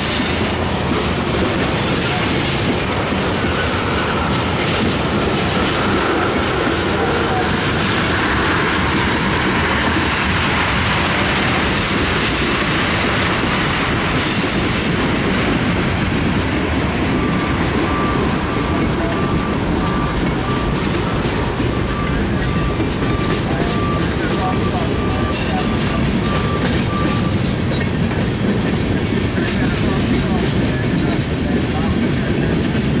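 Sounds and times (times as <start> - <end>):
steel wheels rolling on rail: 0.0 - 33.0.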